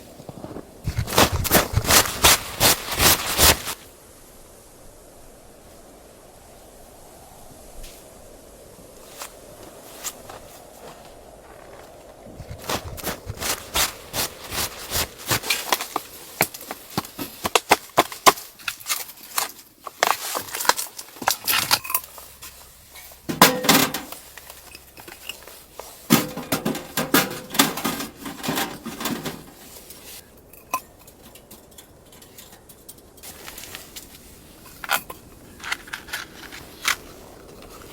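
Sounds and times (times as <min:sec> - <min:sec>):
cookware and utensils clattering: 0:23.0 - 0:33.4.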